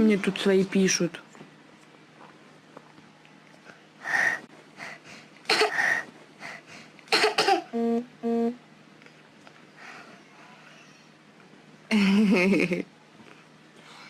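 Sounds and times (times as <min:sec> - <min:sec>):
person coughing: 0:05.5 - 0:06.0, 0:07.1 - 0:07.7.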